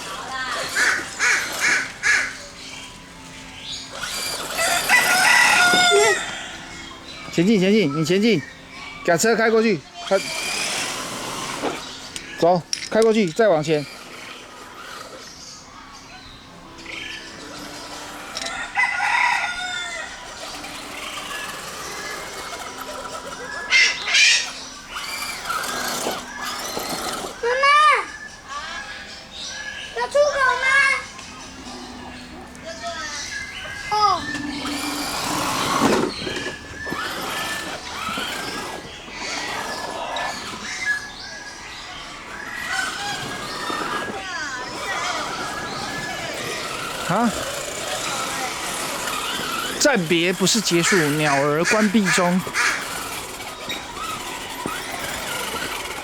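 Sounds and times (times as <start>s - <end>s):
birds chirping and squawking: 0.0s - 56.0s
rooster crowing: 4.4s - 7.0s, 18.4s - 20.6s.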